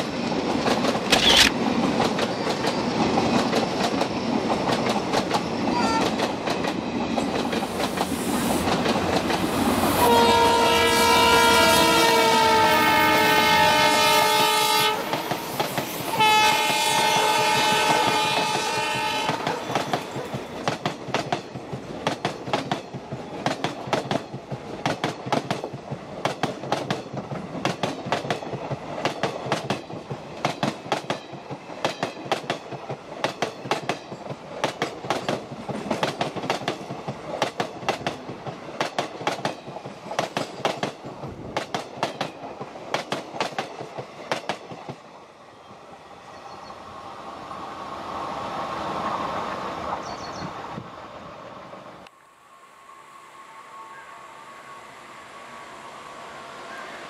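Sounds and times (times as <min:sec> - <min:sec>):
train wheels clickety-clack: 0:00.0 - 0:45.2
train horn blowing: 0:09.9 - 0:20.0, 0:52.8 - 0:57.0.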